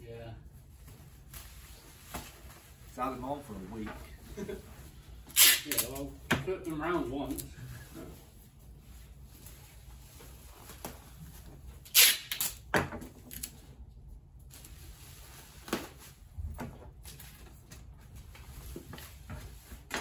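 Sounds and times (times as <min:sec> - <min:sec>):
wrapping material rustling: 0:00.4 - 0:12.5, 0:13.3 - 0:16.4.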